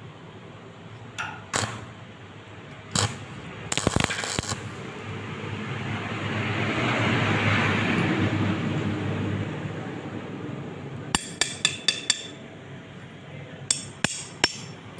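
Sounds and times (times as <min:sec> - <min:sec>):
welding arc crackling: 0:01.2 - 0:02.0, 0:02.9 - 0:05.2.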